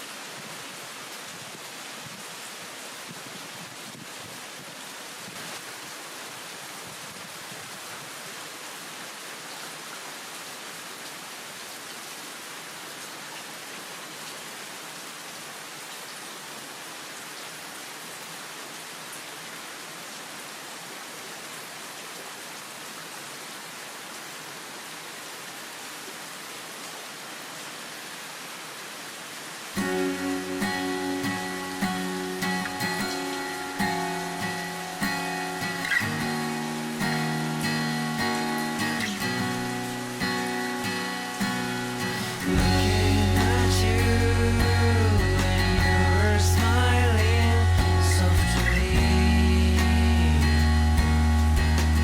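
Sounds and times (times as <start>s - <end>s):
heavy rain falling: 0.0s - 52.0s.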